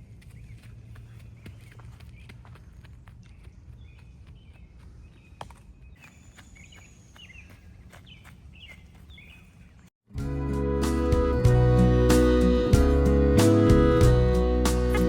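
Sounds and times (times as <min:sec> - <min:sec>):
bird chirping: 0:03.2 - 0:09.9.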